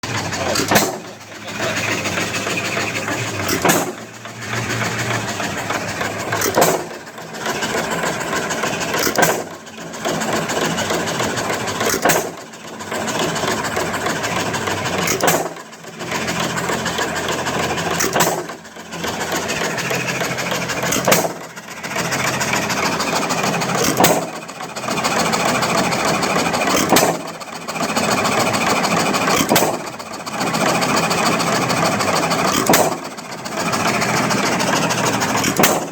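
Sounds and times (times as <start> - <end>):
engine mechanical clatter: 0.0 - 35.9
stationary engine firing bangs: 0.4 - 1.2, 3.4 - 4.1, 6.4 - 7.0.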